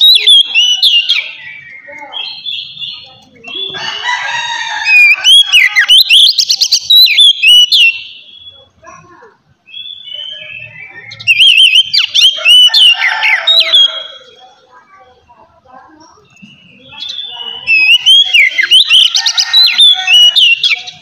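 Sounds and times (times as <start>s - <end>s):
magpie-robin singing: 0.0s - 21.0s.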